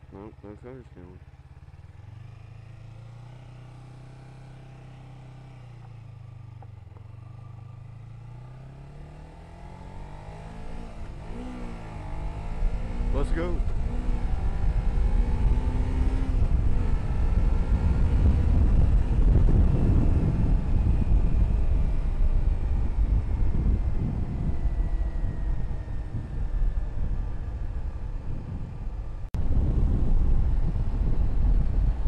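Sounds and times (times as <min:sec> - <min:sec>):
motorcycle engine accelerating: 0:00.0 - 0:32.0
wind rumble on microphone: 0:09.9 - 0:32.0.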